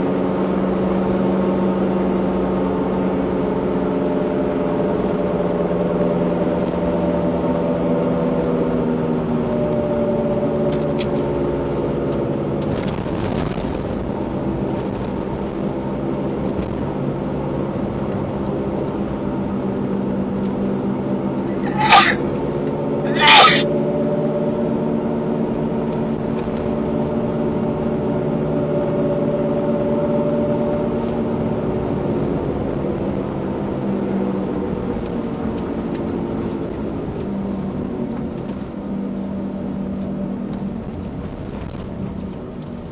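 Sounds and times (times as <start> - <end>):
vehicle engine humming: 0.0 - 42.9
short sharp high sounds: 21.5 - 22.2, 23.1 - 23.7.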